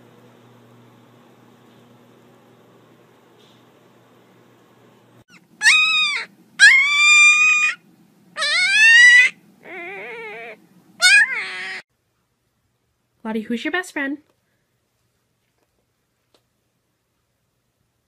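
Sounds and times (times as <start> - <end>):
puppy crying: 5.3 - 7.8, 8.4 - 11.9.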